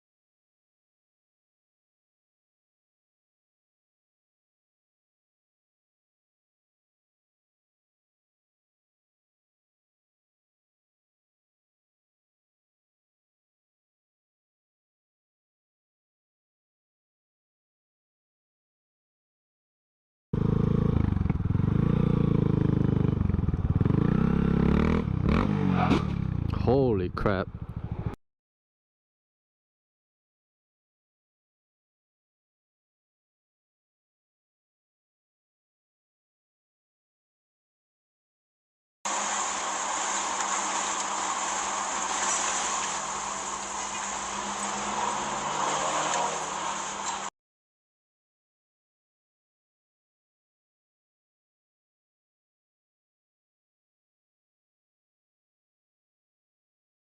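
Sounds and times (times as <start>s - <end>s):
vehicle engine running: 20.4s - 28.2s, 39.1s - 47.3s.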